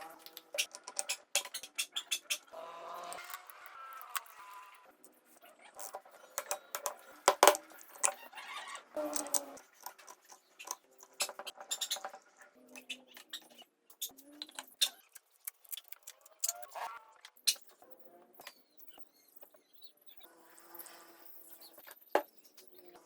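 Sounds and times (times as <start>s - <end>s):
metal parts clinking: 3.1s - 4.4s, 9.0s - 11.3s.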